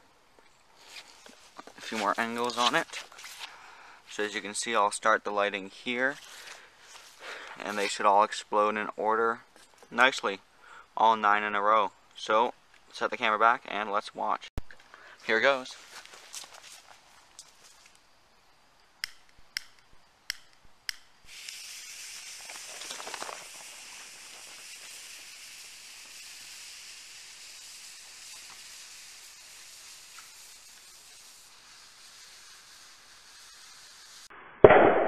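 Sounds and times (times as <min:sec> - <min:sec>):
sharp clicks: 0:19.0 - 0:21.6
fuse fizzing: 0:21.3 - 0:34.3.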